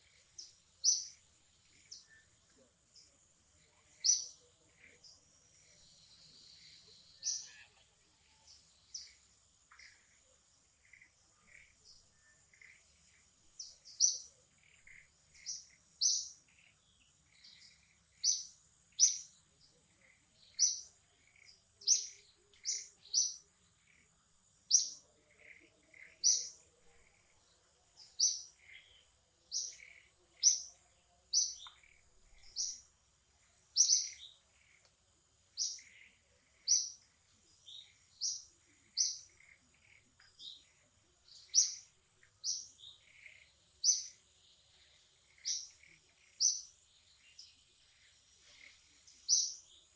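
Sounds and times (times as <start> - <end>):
bird chirping: 0.0 - 49.9
softer lower bird calls: 3.6 - 19.3.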